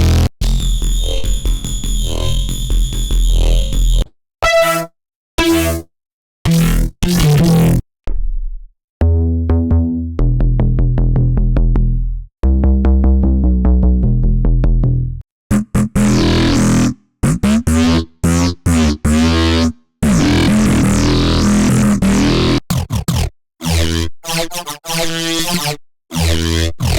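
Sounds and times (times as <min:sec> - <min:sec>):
wobbling growling synth bass: 0:00.0 - 0:04.0, 0:09.0 - 0:24.0, 0:26.1 - 0:26.9
repeated synth bass notes: 0:00.0 - 0:05.9, 0:09.0 - 0:22.6.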